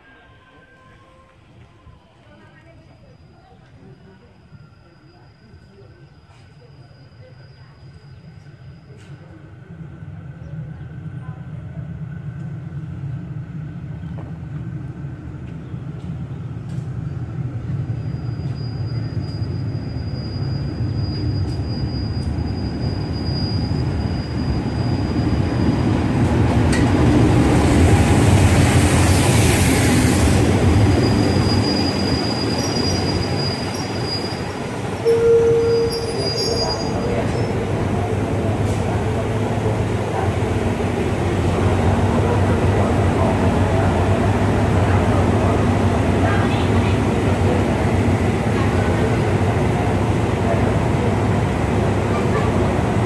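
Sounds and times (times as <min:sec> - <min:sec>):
diesel locomotive engine rumble: 0:00.0 - 0:53.0
high wheel squeal: 0:18.0 - 0:26.0, 0:30.8 - 0:37.7
short loud tone: 0:35.0 - 0:37.0.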